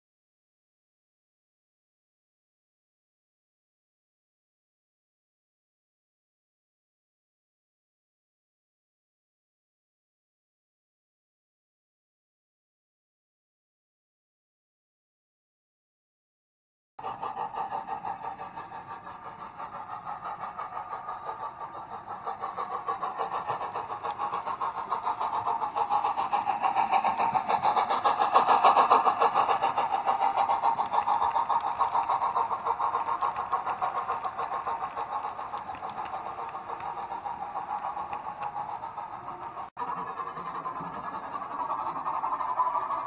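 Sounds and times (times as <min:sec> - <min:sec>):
model locomotive diesel throb: 0:17.0 - 0:43.0.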